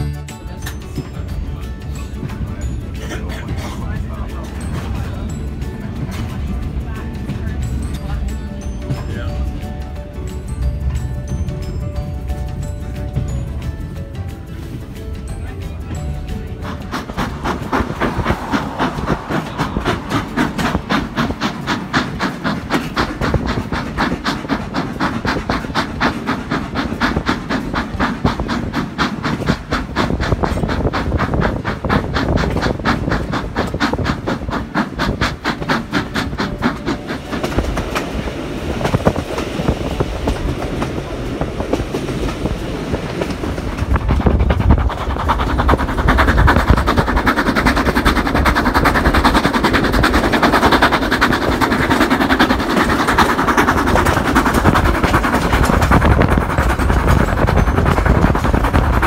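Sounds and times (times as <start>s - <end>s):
steam train rhythmic beat: 0.0s - 59.0s
train rumble: 0.0s - 59.0s.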